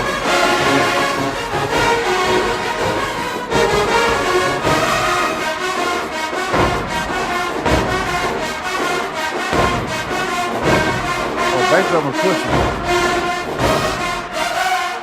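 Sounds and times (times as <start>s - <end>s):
marching band brass: 0.0s - 15.0s
bass drum hits: 9.5s - 14.3s.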